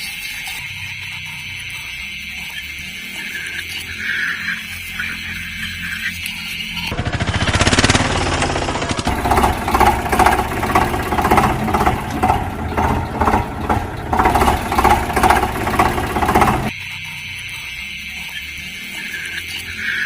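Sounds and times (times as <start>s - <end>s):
motor vehicle engine running: 6.9s - 16.7s.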